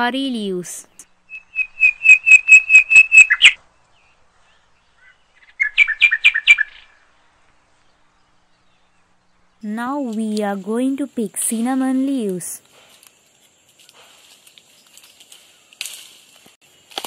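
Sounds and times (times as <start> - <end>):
bird calling repeated high notes: 1.3 - 3.6, 5.0 - 7.1.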